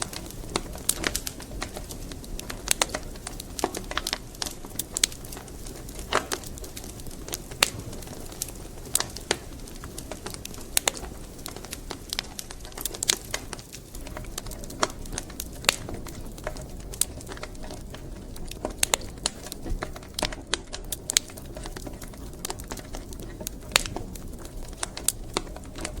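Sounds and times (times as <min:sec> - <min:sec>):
firewood crackling and popping: 0:00.0 - 0:26.0
low rumble of fire: 0:00.0 - 0:26.0.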